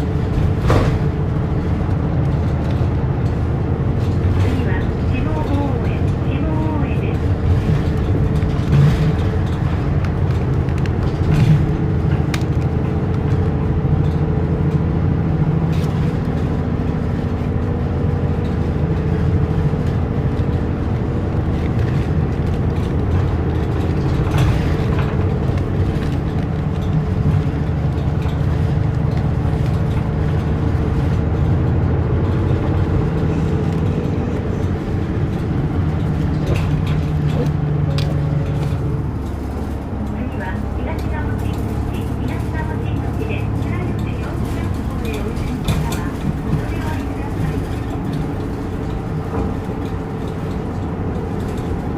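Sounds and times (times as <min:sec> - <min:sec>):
bus engine running: 0:00.0 - 0:51.9
road rumble: 0:00.0 - 0:51.9.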